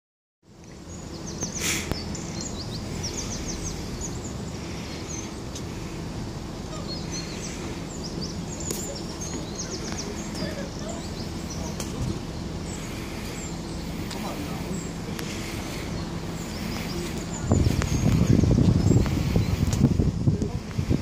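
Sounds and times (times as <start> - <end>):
small birds chirping: 0.4 - 21.0
low background rumble: 0.5 - 21.0
burst of hiss: 1.5 - 2.0.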